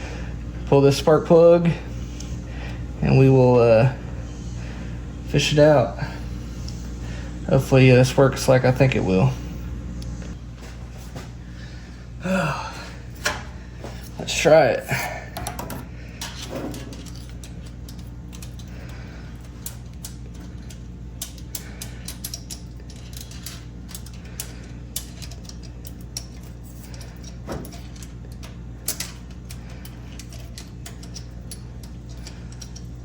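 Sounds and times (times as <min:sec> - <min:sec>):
steady low hum: 0:00.0 - 0:33.0
hand tools clicking and tapping: 0:15.4 - 0:33.0.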